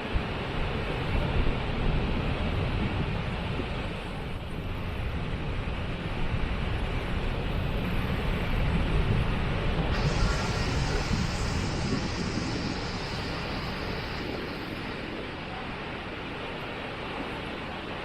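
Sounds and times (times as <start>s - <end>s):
waterfall rushing: 10.0s - 17.7s.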